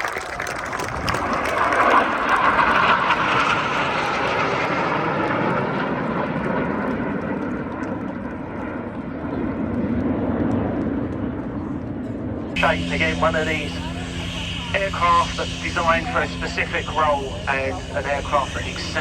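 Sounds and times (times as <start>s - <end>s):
aircraft engine rushing: 0.7s - 8.0s, 12.6s - 19.0s
low aircraft drone: 0.8s - 19.0s.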